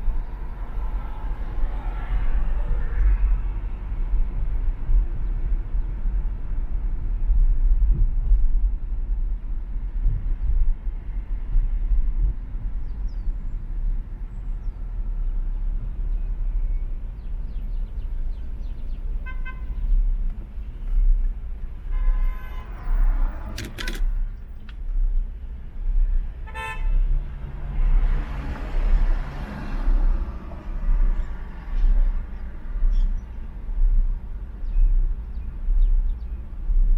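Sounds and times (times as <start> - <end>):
car driving in traffic: 0.0 - 36.9
car horns tooting: 19.2 - 20.0, 21.8 - 24.3, 26.4 - 27.1
sharp clicks: 23.4 - 25.0.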